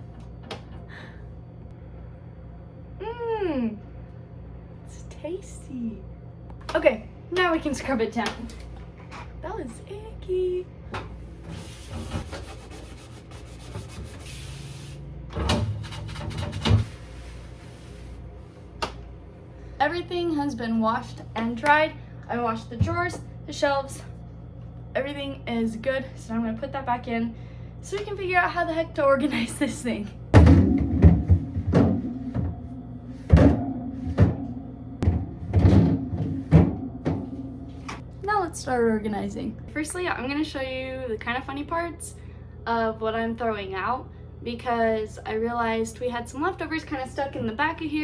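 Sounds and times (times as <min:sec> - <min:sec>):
refrigerator shelves knocking: 0:30.4 - 0:37.5.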